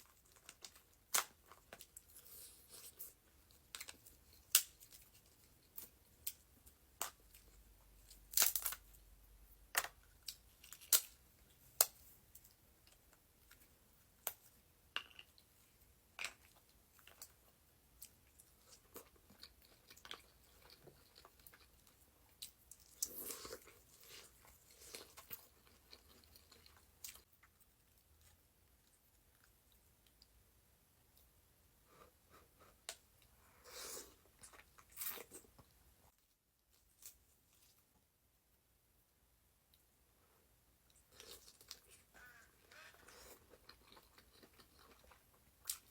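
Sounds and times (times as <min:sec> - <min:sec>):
chewing and crunching seafood: 0:15.0 - 0:30.2, 0:40.9 - 0:45.9.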